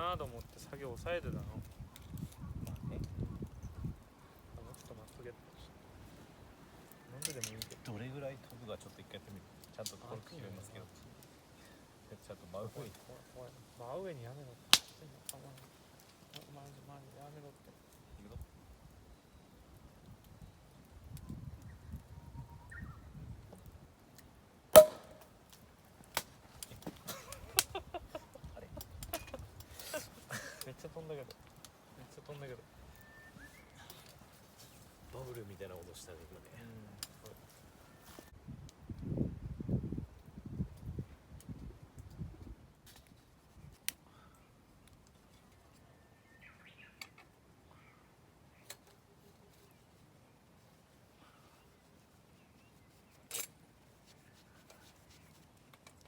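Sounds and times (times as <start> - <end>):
champagne cork popping: 24.7 - 25.3.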